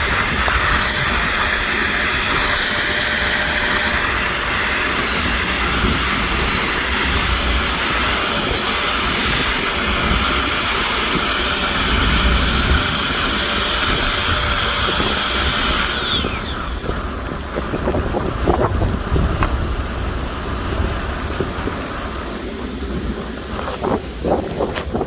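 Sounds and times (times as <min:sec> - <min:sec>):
machine hiss winding down: 0:00.0 - 0:17.2
low rumbling noise: 0:00.0 - 0:25.0.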